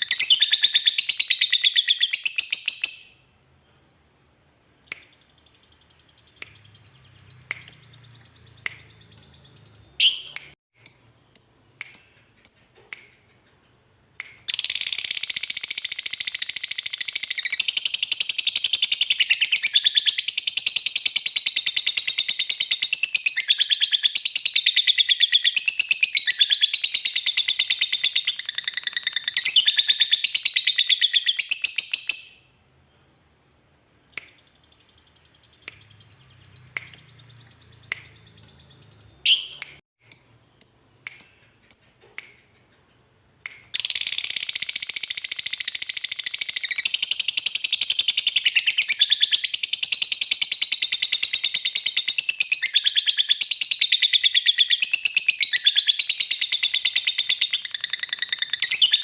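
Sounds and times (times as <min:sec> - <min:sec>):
lovebird chirps: 0:00.0 - 0:13.3, 0:14.2 - 0:42.2, 0:43.4 - 0:59.0.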